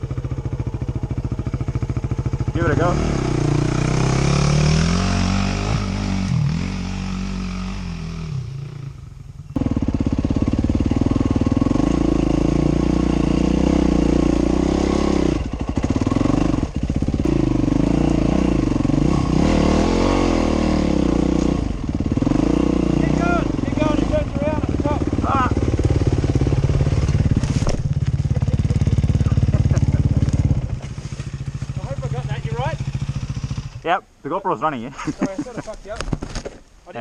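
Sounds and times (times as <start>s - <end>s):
dirt bike engine revving: 0.0s - 35.4s.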